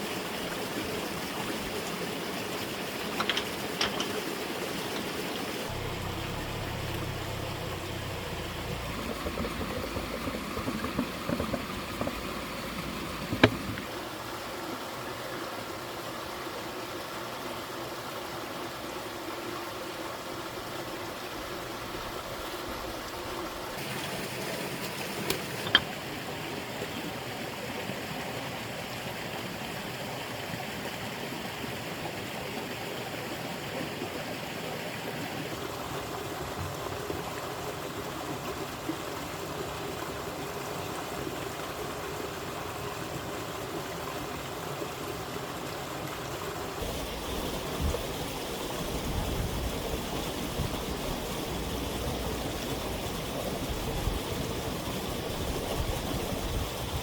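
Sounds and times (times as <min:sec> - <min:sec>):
flowing water rushing: 0:00.0 - 0:57.0
sharp knocks: 0:08.4 - 0:13.8.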